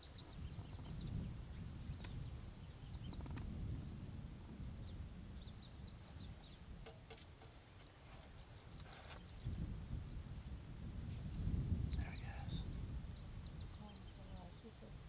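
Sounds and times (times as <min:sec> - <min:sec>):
small birds chirping: 0:00.0 - 0:15.0
low background rumble: 0:09.4 - 0:15.0.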